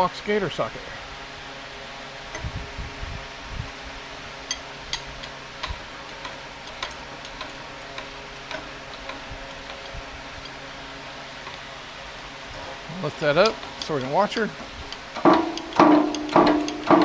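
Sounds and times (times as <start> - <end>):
machinery hum: 0.0 - 17.0
metallic tool clicks and taps: 13.4 - 17.0.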